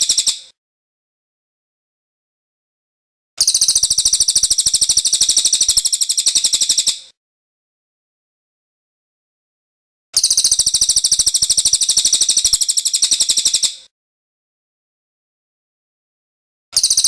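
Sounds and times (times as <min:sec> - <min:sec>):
songbird rattling trill: 0:00.0 - 0:00.5, 0:03.4 - 0:07.1, 0:10.2 - 0:13.8, 0:16.8 - 0:17.0.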